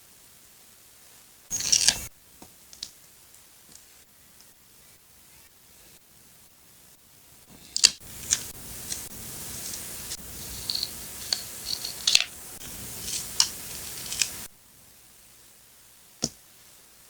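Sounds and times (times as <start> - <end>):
paper rustling: 1.5 - 2.1, 7.5 - 14.5
scissors snipping paper: 1.5 - 2.1, 7.5 - 14.5.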